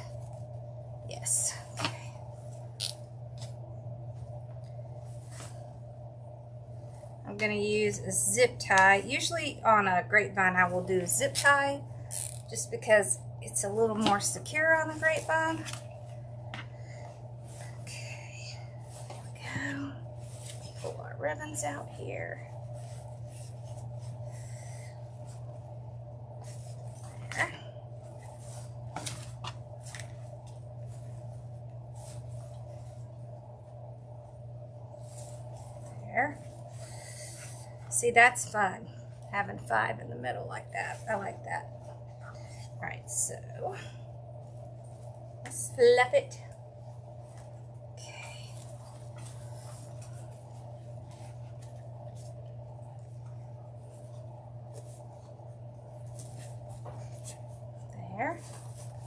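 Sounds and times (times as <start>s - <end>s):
low background hum: 0.0s - 59.0s
mesh and ribbon rustling: 13.6s - 39.2s, 46.6s - 59.0s.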